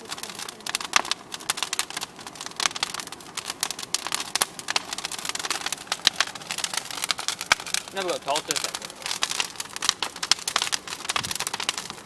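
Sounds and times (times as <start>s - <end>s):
bonfire crackling and popping: 0.0s - 12.0s
fire hiss: 0.0s - 12.0s.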